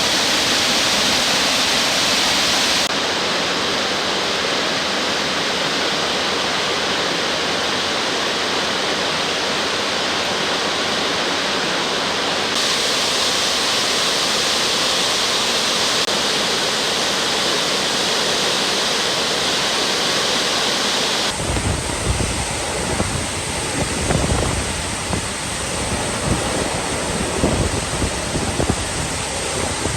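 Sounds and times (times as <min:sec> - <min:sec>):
waterfall roaring: 0:00.0 - 0:29.9
wind buffeting microphone: 0:21.3 - 0:29.9.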